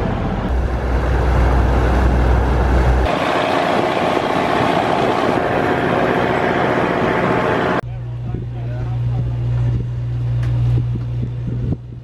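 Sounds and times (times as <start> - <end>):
motorboat engine running: 0.0 - 12.0
water rushing: 0.5 - 7.8.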